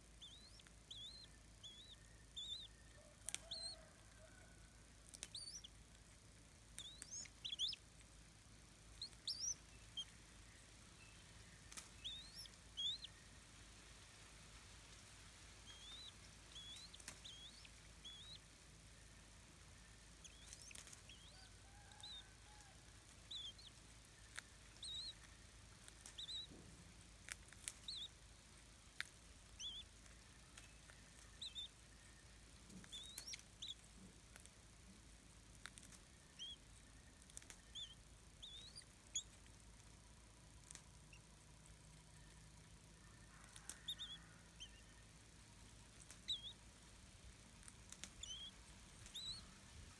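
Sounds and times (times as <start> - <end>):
high short bird chirps: 5.3 - 5.7, 9.0 - 10.1.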